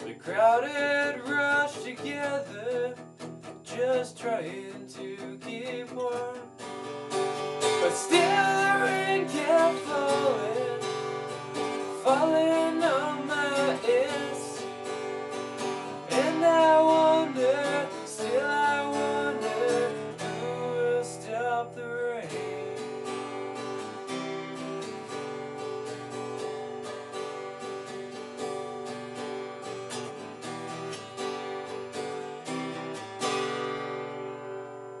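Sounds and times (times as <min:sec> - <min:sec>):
person singing: 0:00.0 - 0:03.0, 0:03.7 - 0:06.5, 0:07.7 - 0:14.9, 0:15.7 - 0:22.8
acoustic guitar strumming: 0:00.0 - 0:35.0.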